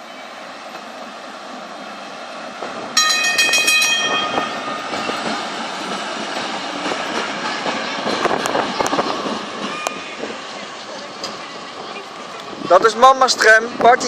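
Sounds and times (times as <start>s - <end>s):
electric tram rolling past: 0.0s - 14.0s
tram warning bell ringing: 2.9s - 7.8s.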